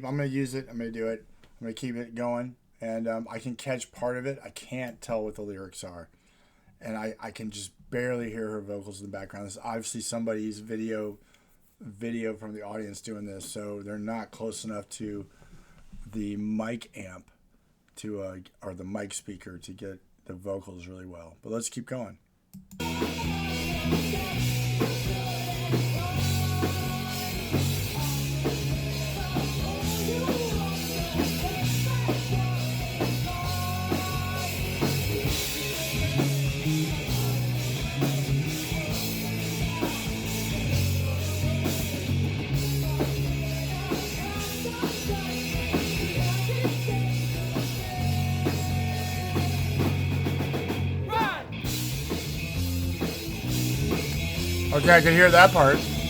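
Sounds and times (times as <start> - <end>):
live rock music: 22.8 - 56.0.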